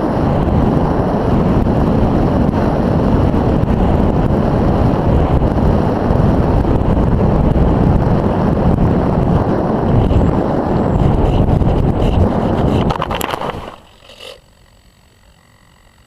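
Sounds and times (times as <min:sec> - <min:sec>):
wind buffeting a microphone: 0:00.0 - 0:13.9.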